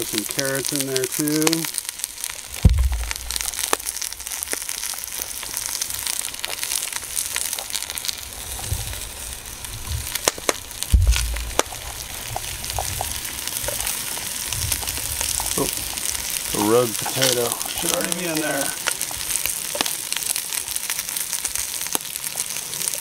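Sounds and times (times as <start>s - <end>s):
vegetables sizzling in a pot: 0.0s - 23.0s
dull low thump: 2.6s - 3.9s, 10.9s - 11.8s.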